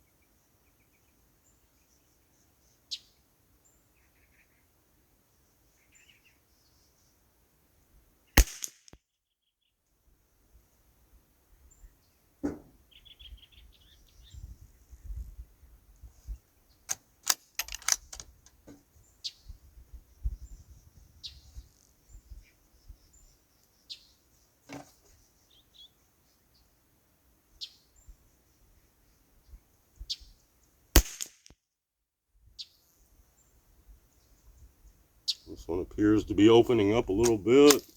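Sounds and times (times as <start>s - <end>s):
rifle shots: 8.4s - 8.8s, 17.2s - 18.2s, 31.0s - 31.4s, 37.2s - 37.9s
bird chirping: 12.8s - 15.0s, 19.0s - 24.5s, 34.2s - 37.9s.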